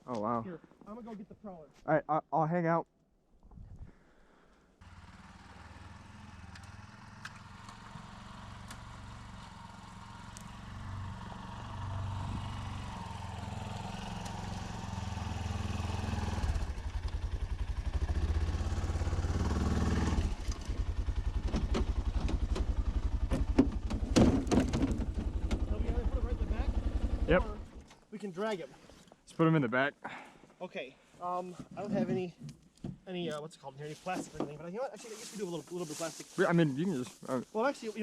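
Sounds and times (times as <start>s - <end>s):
utility vehicle engine chugging: 4.8s - 27.8s
clunks: 21.4s - 25.7s.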